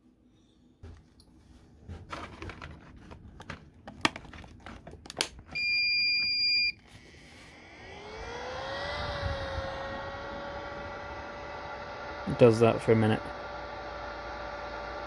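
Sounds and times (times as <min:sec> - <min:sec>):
plastic clicks and knocks: 0:02.1 - 0:05.6.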